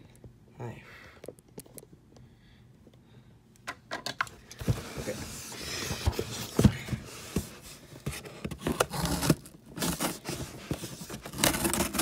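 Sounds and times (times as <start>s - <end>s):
cardboard box scraping and rubbing: 4.6s - 12.0s.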